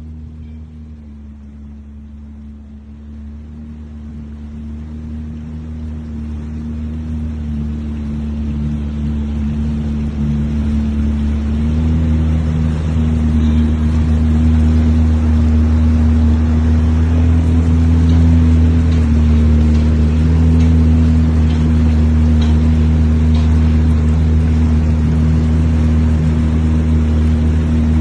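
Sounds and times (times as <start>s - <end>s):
jet ski engine droning: 0.0s - 28.0s
rushing water: 0.0s - 28.0s
wind noise: 27.5s - 28.0s.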